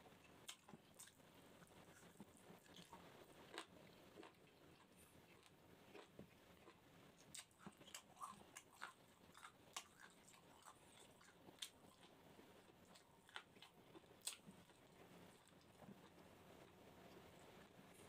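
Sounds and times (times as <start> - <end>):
close-up chewing: 0.0 - 18.0.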